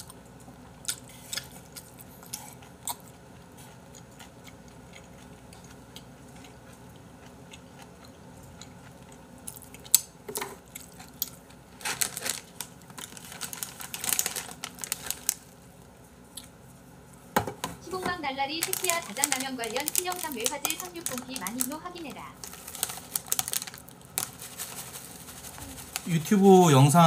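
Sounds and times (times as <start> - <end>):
soft chewing: 0.0 - 11.7, 15.7 - 17.2
plastic snack packet crinkling: 10.7 - 15.6, 18.5 - 26.8.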